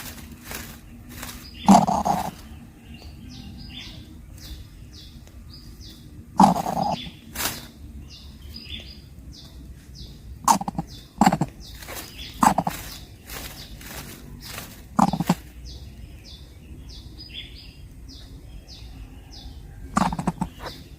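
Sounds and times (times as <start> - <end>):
bird nestling harsh calls: 1.2 - 2.4, 6.4 - 7.6, 10.4 - 15.6, 19.9 - 20.8.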